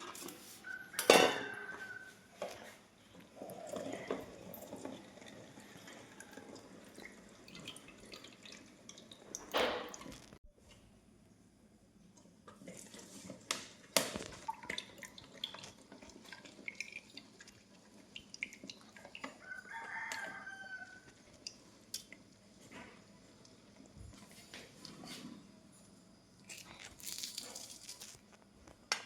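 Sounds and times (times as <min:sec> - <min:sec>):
kitchen clicks and knocks: 0:01.0 - 0:01.9.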